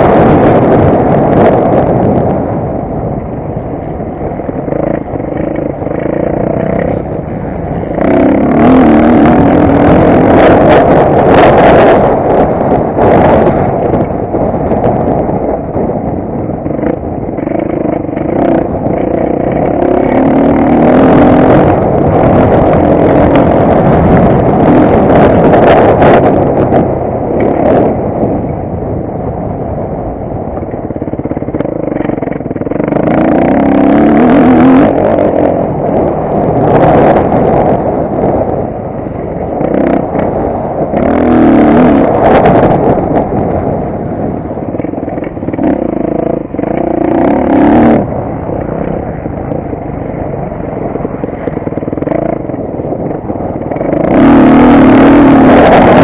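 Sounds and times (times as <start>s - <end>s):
motocross bike engine revving: 4.3s - 14.2s, 16.6s - 28.1s, 30.9s - 38.6s, 39.4s - 43.4s, 44.6s - 56.0s.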